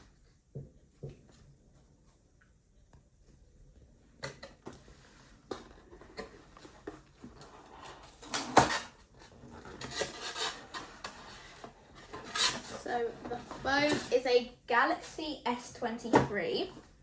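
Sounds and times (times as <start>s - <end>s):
packaging rubbing and scraping: 5.6s - 14.1s.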